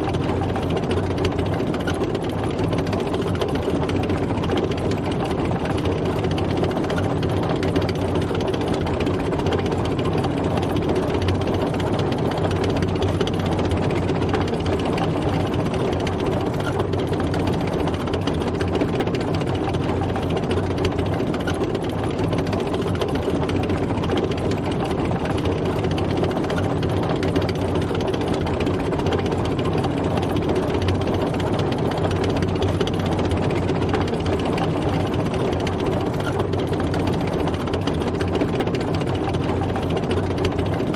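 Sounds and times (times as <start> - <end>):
tank engine drone: 0.0 - 40.9.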